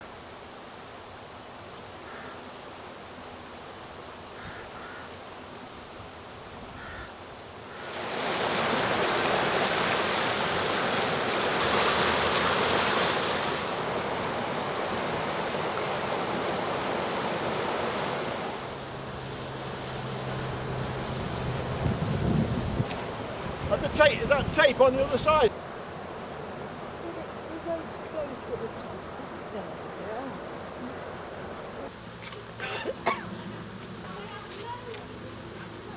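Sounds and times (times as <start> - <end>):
engine hum: 9.0 - 23.7.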